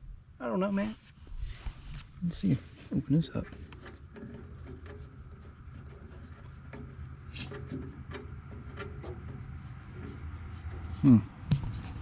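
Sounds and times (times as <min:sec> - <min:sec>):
hands scraping fuel fitting: 0:03.4 - 0:12.0
steady low hum: 0:11.5 - 0:12.0.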